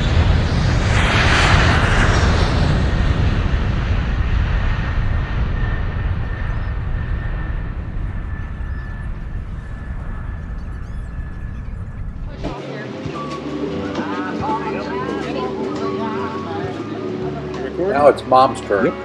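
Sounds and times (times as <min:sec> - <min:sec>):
faint steady whine: 0:02.8 - 0:12.6.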